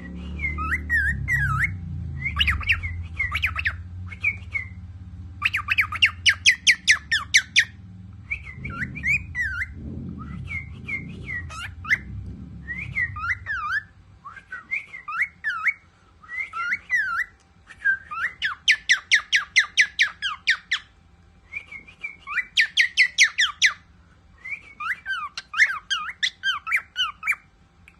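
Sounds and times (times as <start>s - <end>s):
cockatiel whistling: 0.0s - 4.8s, 5.4s - 20.9s, 21.5s - 23.8s
rattling bird trills: 5.4s - 14.2s.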